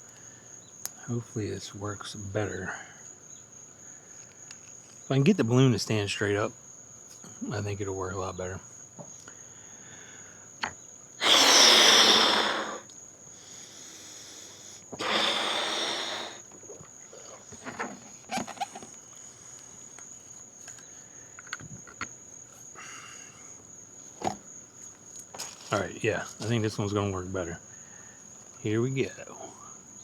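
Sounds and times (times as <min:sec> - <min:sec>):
crickets chirping: 0:00.0 - 0:30.0
person blowing up balloon: 0:11.2 - 0:12.9, 0:15.0 - 0:16.4
person breathing in: 0:13.4 - 0:16.4.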